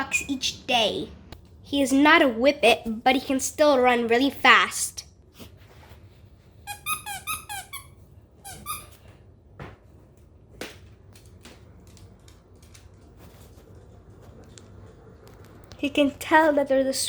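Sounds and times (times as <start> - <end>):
squeaky dog toy squeaks: 6.7 - 9.0.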